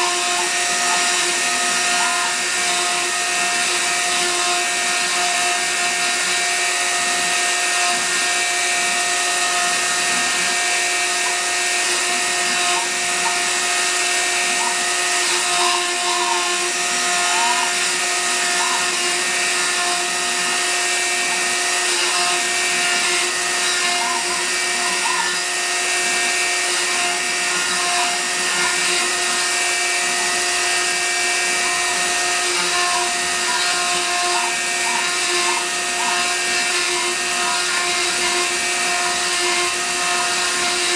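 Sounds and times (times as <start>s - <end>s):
spindle motor whine: 0.0s - 40.9s.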